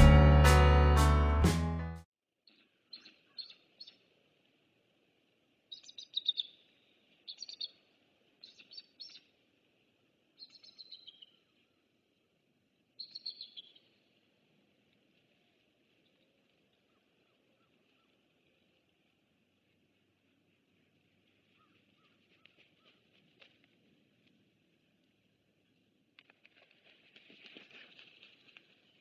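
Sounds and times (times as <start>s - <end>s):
music: 0.0s - 2.1s
high bird chirps: 2.5s - 4.0s, 5.7s - 7.8s, 8.4s - 9.2s, 10.4s - 11.4s, 13.0s - 13.9s.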